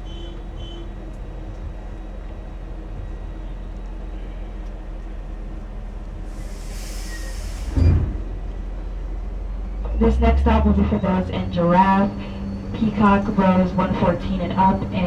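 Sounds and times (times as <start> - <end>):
tram drive hum: 0.0 - 15.0
short hiss: 6.3 - 8.0.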